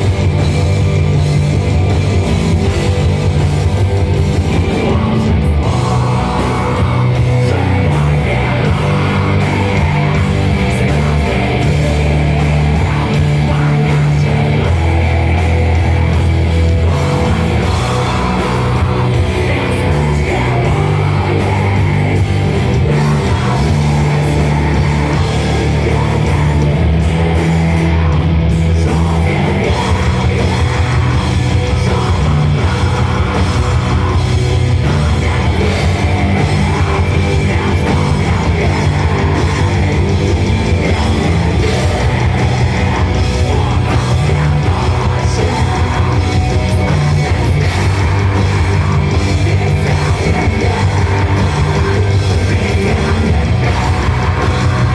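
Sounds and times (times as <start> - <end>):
heavy guitar: 0.0 - 54.9
rock band playing live: 0.0 - 54.9
sustained low bass notes: 0.0 - 54.9.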